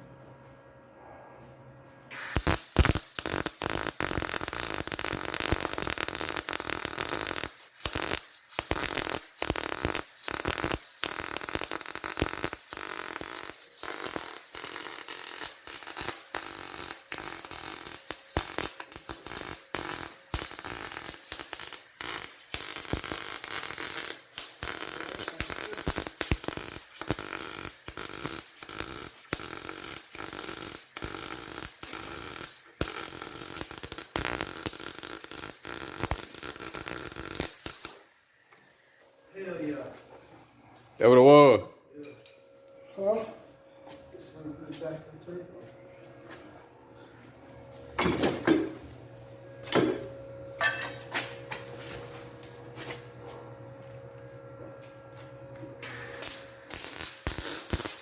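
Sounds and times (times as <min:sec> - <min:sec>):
welding arc crackling: 0:02.1 - 0:39.0, 0:50.6 - 0:52.6, 0:55.8 - 0:58.0.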